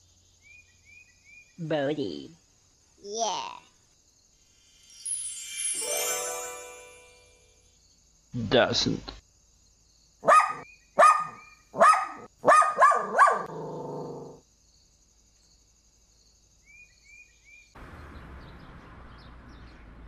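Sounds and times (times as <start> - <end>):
dog barking: 10.2 - 14.3.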